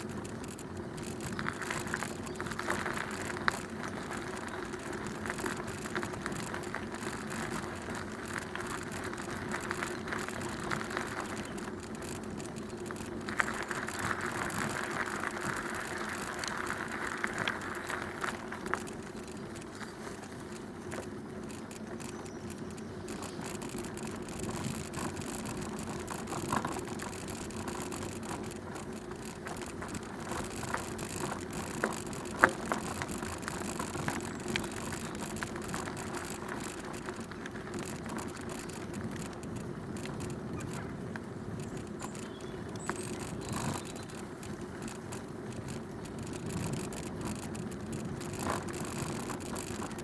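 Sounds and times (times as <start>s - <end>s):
bicycle clicks: 0.0s - 50.0s
bicycle frame rattling: 0.0s - 50.0s
bicycle tyre noise: 0.0s - 50.0s.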